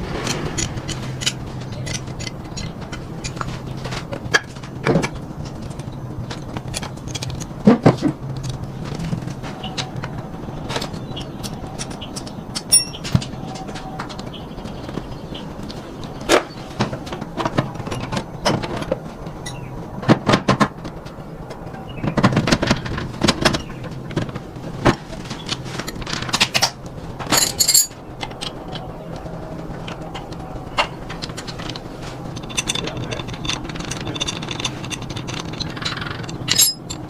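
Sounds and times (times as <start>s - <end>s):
rattling clatter: 0.0s - 13.8s, 16.2s - 37.0s
steady low hum: 0.0s - 37.0s
metallic clinks of hand tools: 12.1s - 13.0s, 36.2s - 37.0s.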